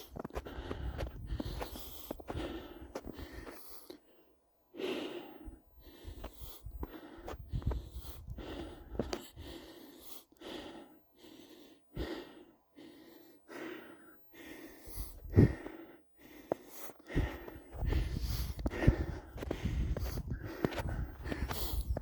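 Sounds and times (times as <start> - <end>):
footsteps on snow: 0.0 - 3.7, 16.4 - 22.0
person breathing: 0.0 - 22.0.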